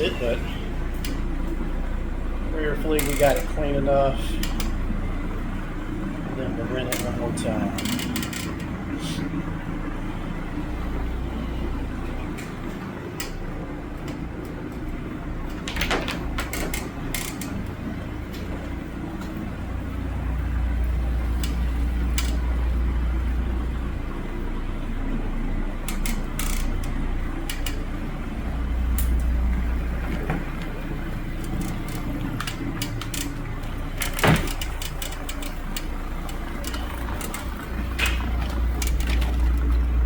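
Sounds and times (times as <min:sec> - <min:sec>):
carpet cleaning machine drone: 0:00.0 - 0:03.0.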